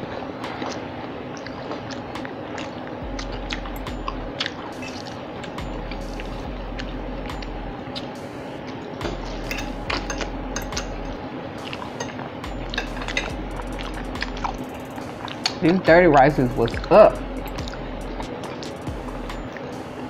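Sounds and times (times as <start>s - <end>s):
wet chewing and lip smacking: 0.5s - 8.2s, 9.1s - 15.8s, 16.5s - 19.8s
fork tapping plates: 9.0s - 13.4s.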